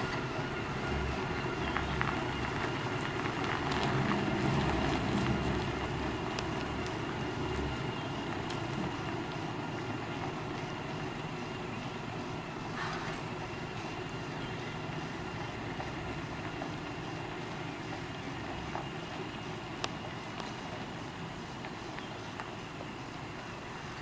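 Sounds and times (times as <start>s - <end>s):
bus diesel engine running: 0.0s - 24.0s.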